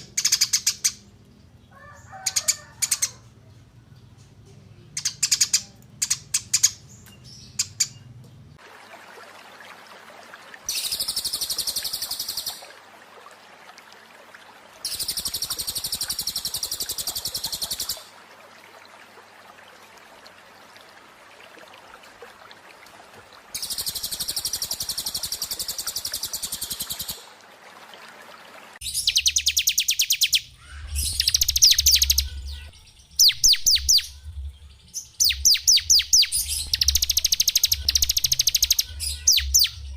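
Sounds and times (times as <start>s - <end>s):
songbird singing buzzy trills: 5.0s - 8.6s, 10.7s - 12.8s, 28.8s - 39.9s.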